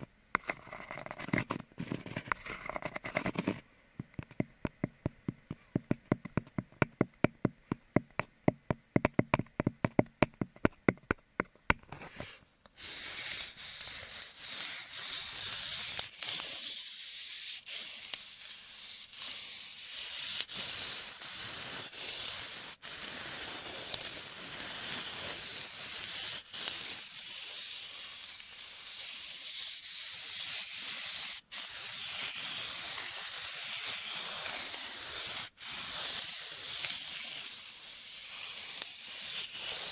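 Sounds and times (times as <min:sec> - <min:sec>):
high hissing rub: 0:12.1 - 0:39.9.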